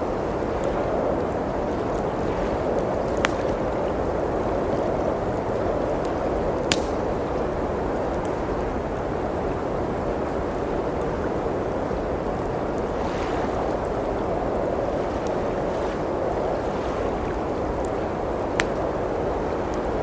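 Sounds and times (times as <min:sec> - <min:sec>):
blizzard wind blowing: 0:00.0 - 0:20.0
wood fire crackling: 0:00.0 - 0:20.0.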